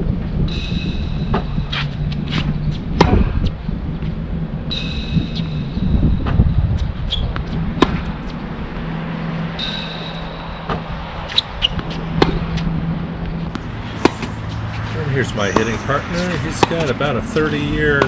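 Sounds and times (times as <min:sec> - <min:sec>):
steady low hum: 0:13.6 - 0:18.0
tennis balls struck by rackets: 0:13.6 - 0:18.0.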